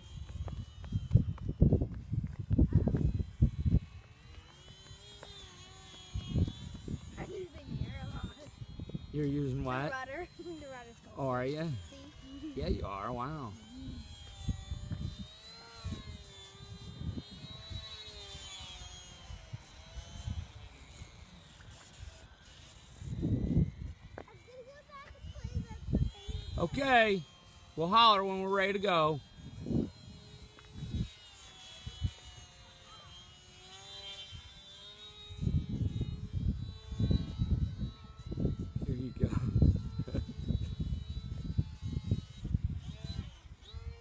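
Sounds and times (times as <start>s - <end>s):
wind buffeting microphone: 0.0s - 4.4s, 5.7s - 11.0s, 11.6s - 18.0s, 23.0s - 26.8s, 29.2s - 32.5s, 35.3s - 44.0s
model airplane motor whining: 0.0s - 44.0s.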